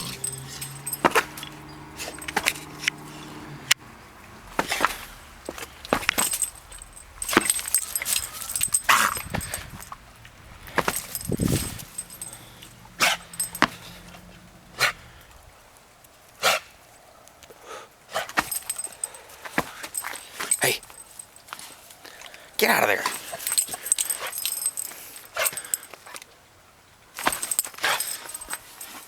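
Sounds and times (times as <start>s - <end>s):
dog barking: 12.3s - 15.1s.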